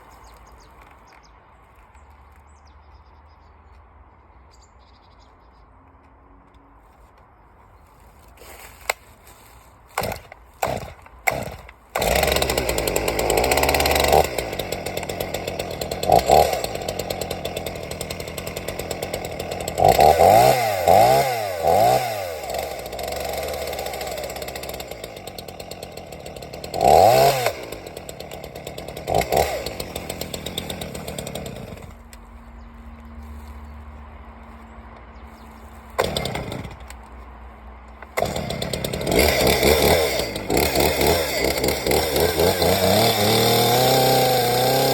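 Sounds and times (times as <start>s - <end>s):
chainsaw starting and revving: 8.4s - 32.4s, 35.4s - 44.9s.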